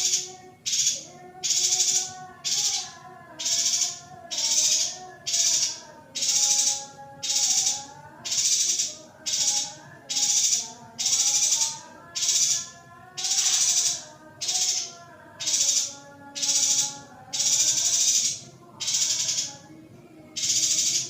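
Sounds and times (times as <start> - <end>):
bird giving buzzy high calls: 20.4 - 21.0.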